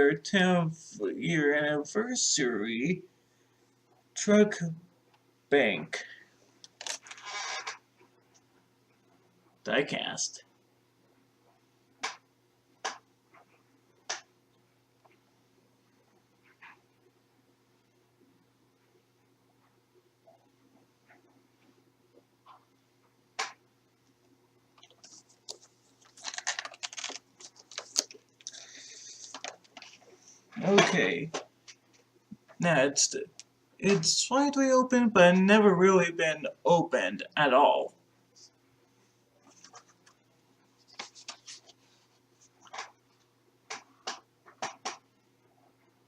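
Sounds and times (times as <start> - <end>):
crackling clicks and rustles: 6.6 - 9.6, 11.4 - 15.3, 16.0 - 17.1, 18.8 - 32.6, 39.4 - 46.0
packaging rustling and clicking: 24.8 - 30.0.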